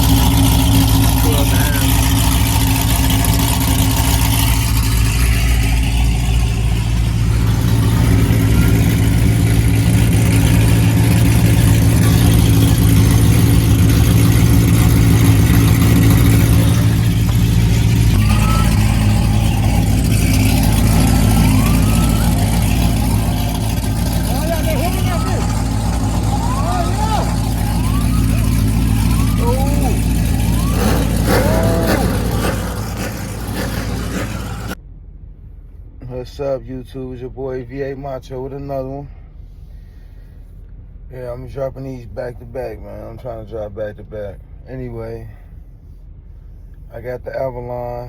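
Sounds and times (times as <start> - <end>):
car engine hum inside cabin: 0.0 - 36.0.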